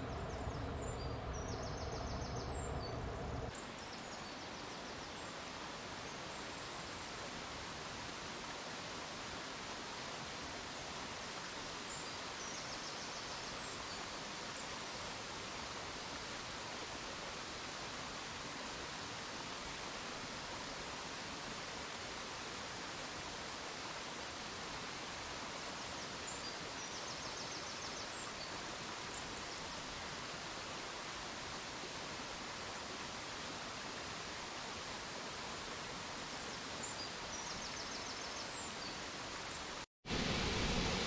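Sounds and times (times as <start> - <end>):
steady outdoor rushing noise: 40.0 - 41.0.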